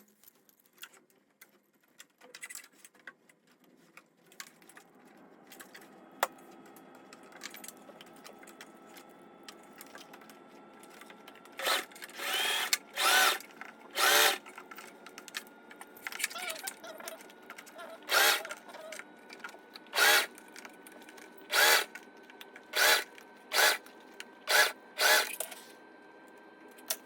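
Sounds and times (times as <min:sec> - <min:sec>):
sewing machine motor hum: 0:04.8 - 0:27.0
sewing machine stitching: 0:11.6 - 0:14.6, 0:17.6 - 0:19.0, 0:19.9 - 0:20.4, 0:21.5 - 0:22.0, 0:22.6 - 0:25.7.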